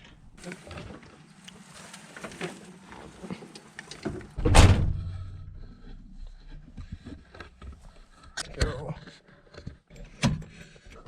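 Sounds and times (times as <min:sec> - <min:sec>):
small clicks and rustles: 0:00.0 - 0:04.4
truck door slamming: 0:04.4 - 0:05.2.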